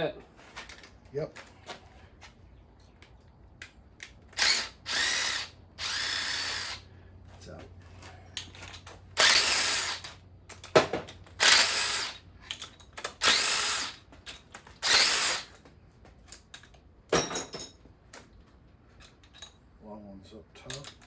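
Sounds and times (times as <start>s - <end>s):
bolts and tools clinking: 7.9s - 9.4s, 12.4s - 13.5s, 16.2s - 18.3s, 18.9s - 21.0s
power drill spinning bolts out: 8.4s - 15.6s.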